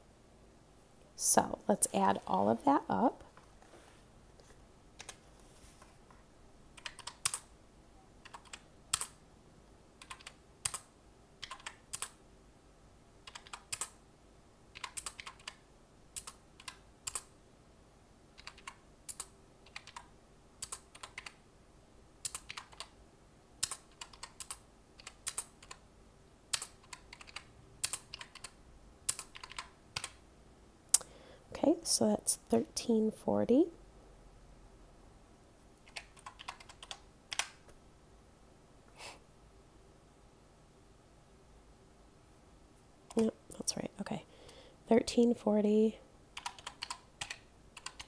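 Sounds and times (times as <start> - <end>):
calculator keys clicking: 46.4 - 48.0.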